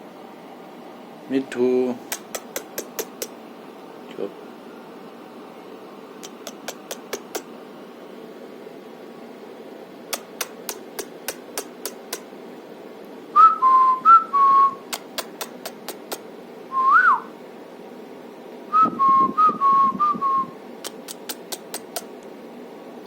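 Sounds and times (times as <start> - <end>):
sharp ticks: 2.1 - 3.4, 6.2 - 7.5, 10.1 - 12.3, 14.9 - 16.2, 20.8 - 22.2.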